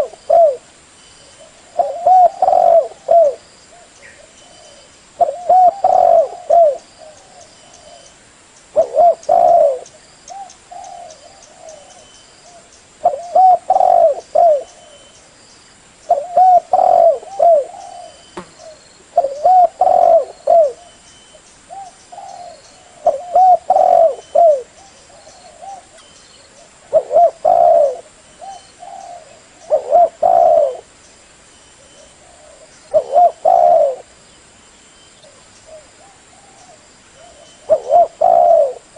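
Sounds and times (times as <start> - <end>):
dove cooing: 0.0 - 0.7, 1.3 - 8.1, 8.7 - 15.2, 16.1 - 21.0, 21.7 - 30.9, 31.8 - 34.1, 35.2 - 38.9.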